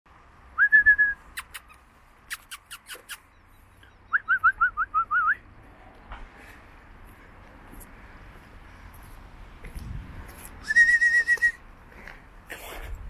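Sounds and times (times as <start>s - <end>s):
quick rising whistles: 0.6s - 1.7s, 10.6s - 11.6s
bird chirping: 1.3s - 5.7s.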